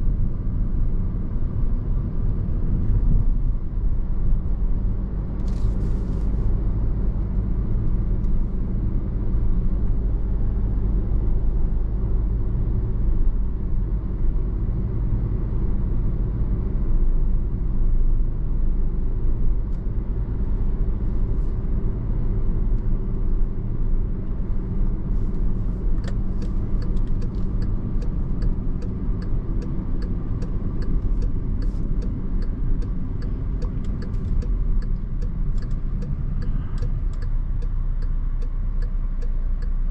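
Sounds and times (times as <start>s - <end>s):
car road and engine rumble: 0.0s - 39.9s
turn signal clicking: 25.9s - 39.9s.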